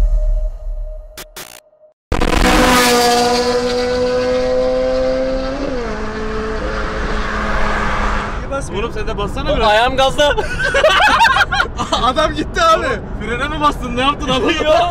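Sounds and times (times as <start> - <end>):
car engine under full throttle: 2.1 - 10.2.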